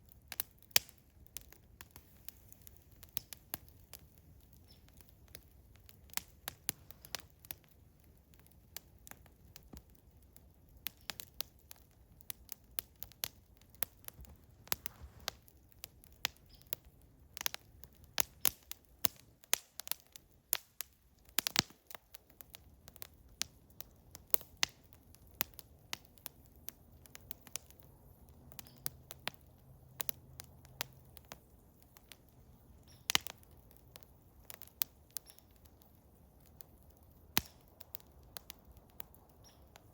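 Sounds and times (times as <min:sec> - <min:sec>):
campfire crackling and popping: 0:00.0 - 0:39.9
soft hiss of burning: 0:00.0 - 0:39.9.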